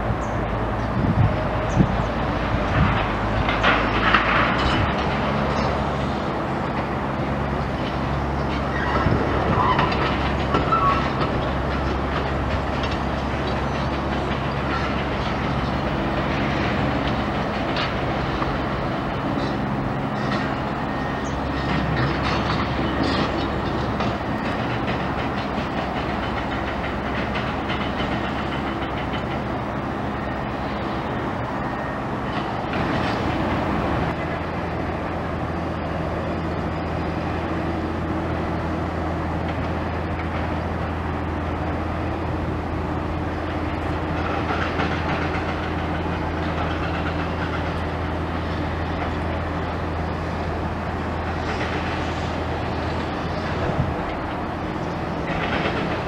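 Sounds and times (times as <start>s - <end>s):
heavy machinery droning: 0.0s - 56.0s
metallic clanks and squeals: 8.4s - 12.0s, 19.4s - 29.4s.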